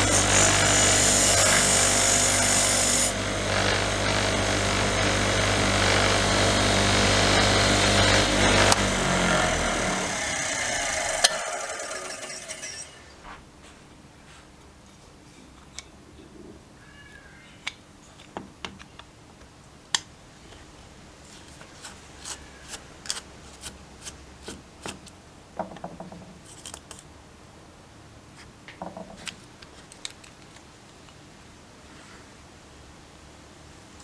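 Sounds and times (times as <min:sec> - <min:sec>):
hand tools clicking and snipping: 0:07.8 - 0:13.2.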